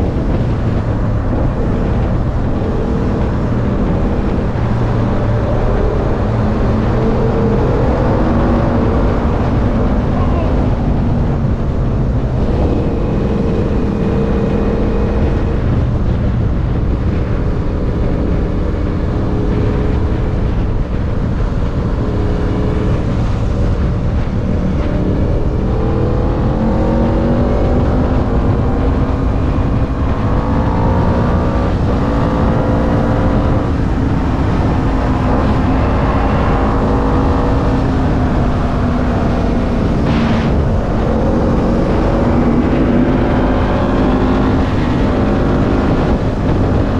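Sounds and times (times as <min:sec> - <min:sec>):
wind rumble on microphone: 0:00.0 - 0:46.9.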